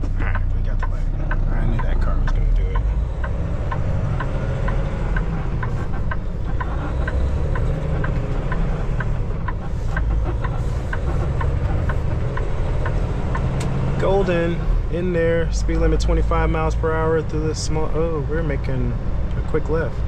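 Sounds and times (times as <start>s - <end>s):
turn signal clicking: 0.0s - 14.6s
diesel engine rumbling: 0.0s - 20.0s.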